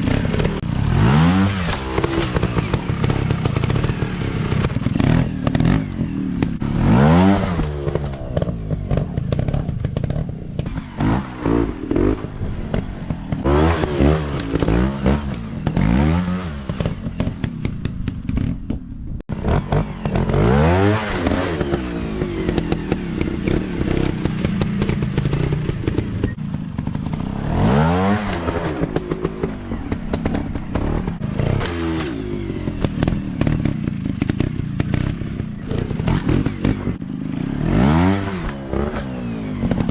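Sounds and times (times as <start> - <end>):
dirt bike engines revving: 0.0 - 18.6, 19.3 - 39.9
clattering and scraping: 16.7 - 19.0.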